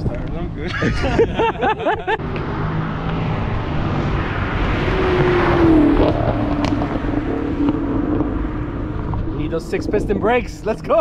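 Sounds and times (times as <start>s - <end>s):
car engine passing by: 1.2s - 10.0s.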